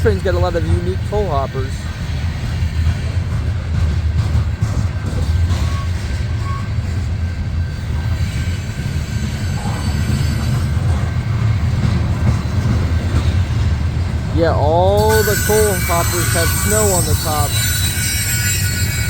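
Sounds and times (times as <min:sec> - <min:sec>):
train wheels rumbling on rail: 0:00.0 - 0:19.0
faint wheel squeals: 0:05.5 - 0:06.9, 0:15.1 - 0:19.0.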